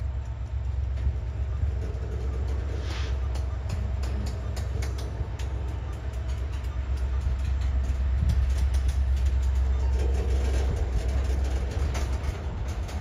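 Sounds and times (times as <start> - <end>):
train rumbling: 0.0 - 13.0
wheels clicking on rails: 0.0 - 13.0.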